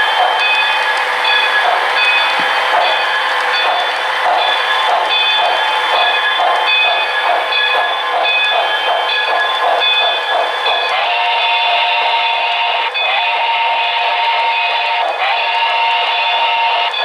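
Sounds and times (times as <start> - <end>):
model train running: 0.0 - 17.0
steady tones: 0.0 - 17.0.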